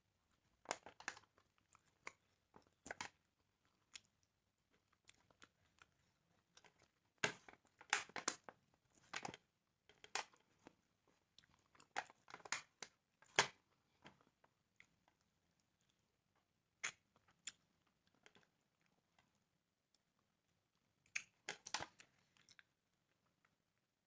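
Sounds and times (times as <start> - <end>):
crunching and chewing chicken: 0.2 - 23.9.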